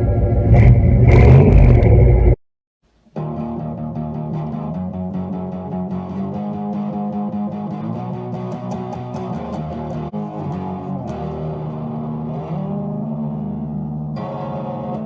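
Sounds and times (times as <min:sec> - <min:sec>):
electric guitar music: 0:03.2 - 0:15.0.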